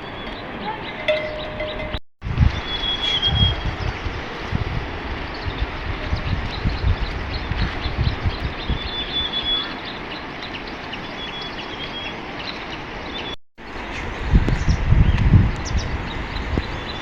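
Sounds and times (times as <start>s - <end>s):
wind buffeting microphone: 0.0s - 10.9s, 12.9s - 17.0s
small birds chirping: 0.0s - 17.0s.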